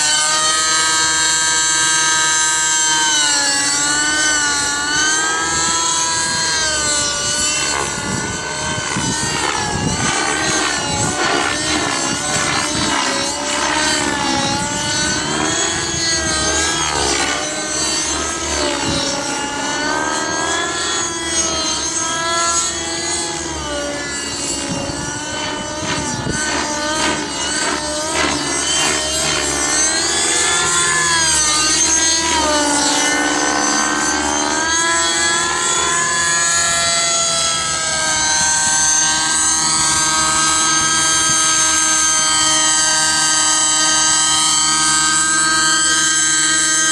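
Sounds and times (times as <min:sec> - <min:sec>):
rc helicopter engine and rotor: 0:00.0 - 0:46.9
wind buffeting microphone: 0:06.1 - 0:17.2, 0:24.6 - 0:28.5.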